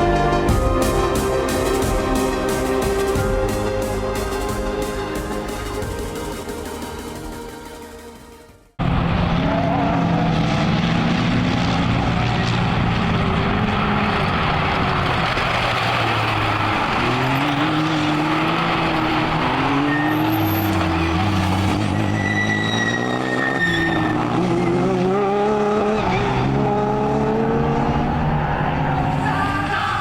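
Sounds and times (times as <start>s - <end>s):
racing quad bike engines: 8.8s - 30.0s.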